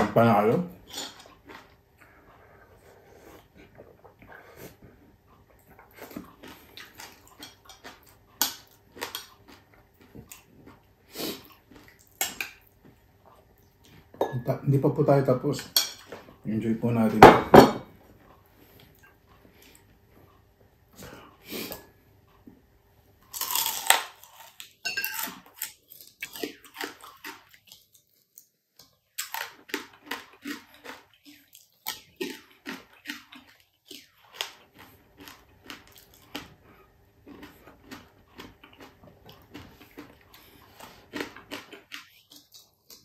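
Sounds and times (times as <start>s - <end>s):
crunchy chewing: 0.8s - 14.1s, 23.3s - 43.0s.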